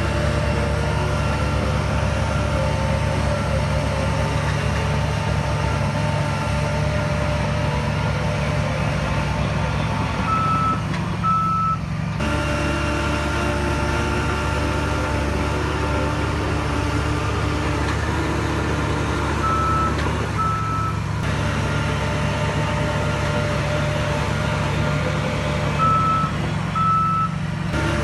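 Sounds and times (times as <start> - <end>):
heavy diesel engine running: 0.0 - 28.0
reversing alarm beeping: 10.3 - 11.8, 19.4 - 21.0, 25.8 - 27.4.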